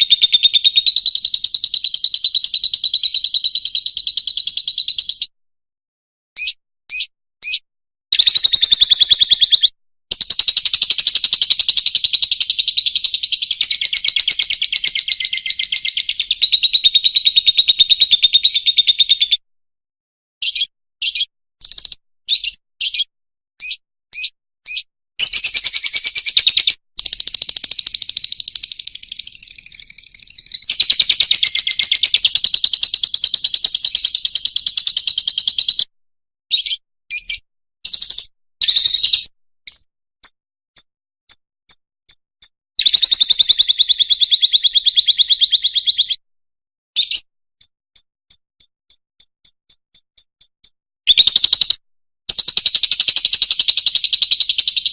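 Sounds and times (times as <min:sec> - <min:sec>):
bird chirping and buzzing trills: 0:06.4 - 0:07.6, 0:20.4 - 0:35.8.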